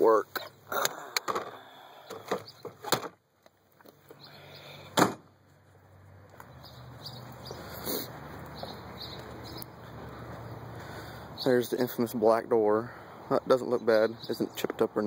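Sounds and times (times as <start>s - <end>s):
car door clunk: 5.0s - 5.2s.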